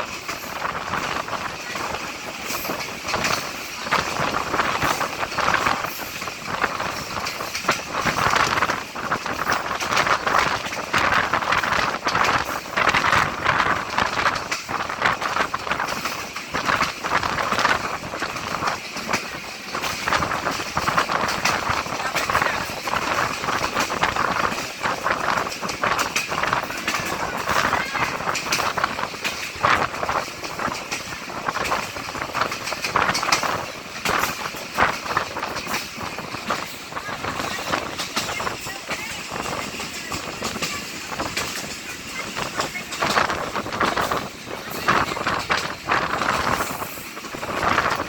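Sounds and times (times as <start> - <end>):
train carriage rattling: 0.0 - 48.0
people's voices: 15.6 - 48.0.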